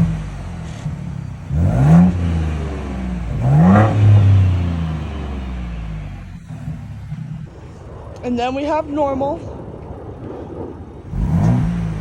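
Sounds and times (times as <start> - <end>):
car engine revving: 0.0 - 8.8, 9.8 - 12.0.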